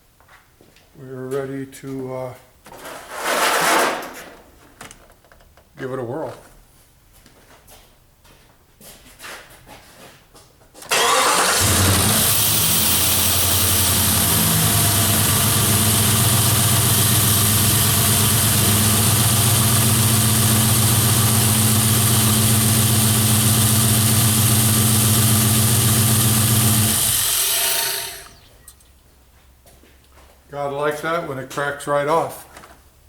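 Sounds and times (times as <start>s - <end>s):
engine starting and idling: 10.8s - 28.8s.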